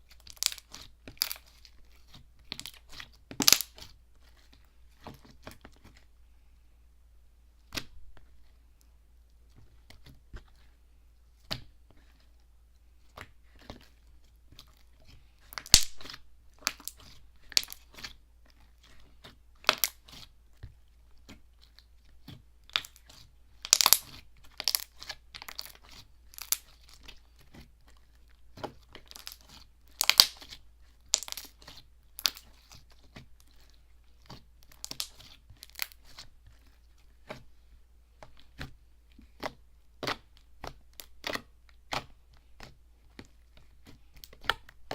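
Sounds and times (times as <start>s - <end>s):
slime squeezed by hand crackling: 0.3s - 1.6s, 3.4s - 3.9s, 15.6s - 17.8s, 22.7s - 26.9s, 29.1s - 32.7s, 34.7s - 36.2s.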